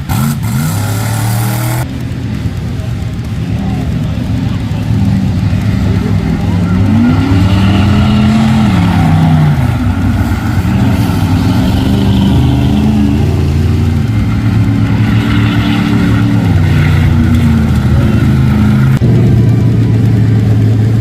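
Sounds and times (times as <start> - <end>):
truck engine revving: 0.0 - 21.0.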